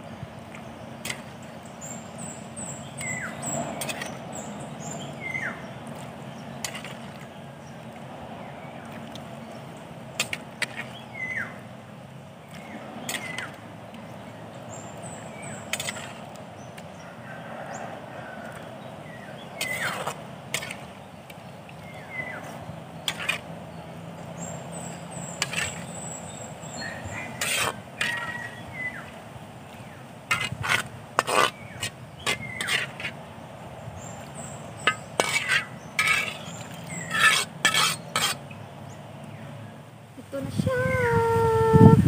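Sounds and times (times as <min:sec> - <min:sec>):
birds chirping and whistling: 0:00.6 - 0:06.6, 0:10.6 - 0:11.6, 0:12.6 - 0:16.8, 0:19.0 - 0:30.0, 0:31.3 - 0:32.9, 0:33.8 - 0:39.4.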